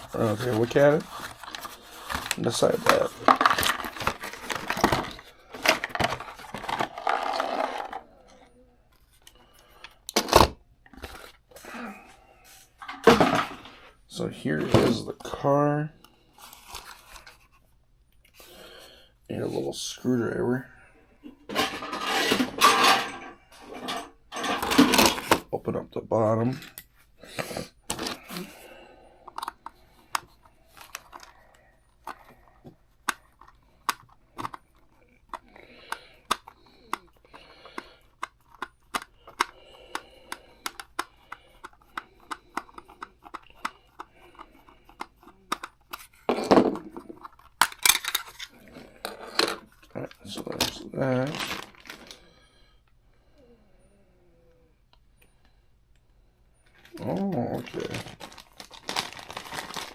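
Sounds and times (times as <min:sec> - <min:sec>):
packaging rustling and tearing: 0:00.0 - 0:08.0, 0:41.7 - 0:52.2, 0:56.8 - 0:59.9.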